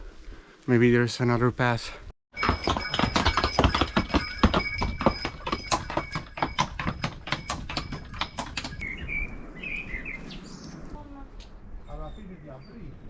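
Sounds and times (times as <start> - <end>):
quick footsteps on stone: 2.4 - 8.9.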